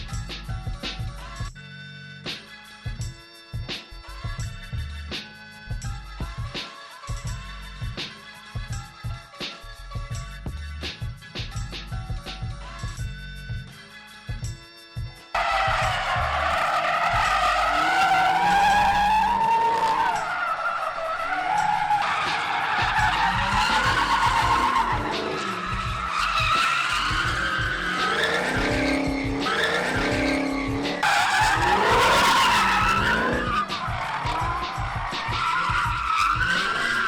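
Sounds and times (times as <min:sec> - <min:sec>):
car engine running: 0:15.4 - 0:37.0
tyres squealing: 0:15.4 - 0:37.0.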